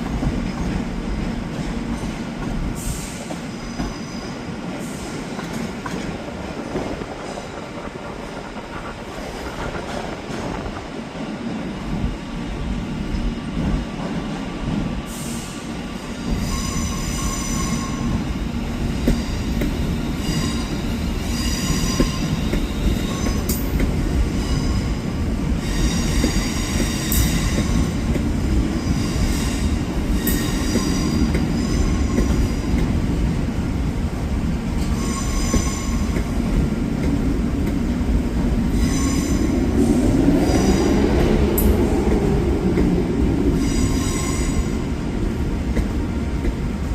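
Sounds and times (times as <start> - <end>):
train rumbling on track: 0.0 - 46.9
train wheels squealing: 2.8 - 5.3, 15.0 - 28.1, 28.7 - 32.9, 34.8 - 36.2, 38.7 - 39.6, 43.5 - 44.8.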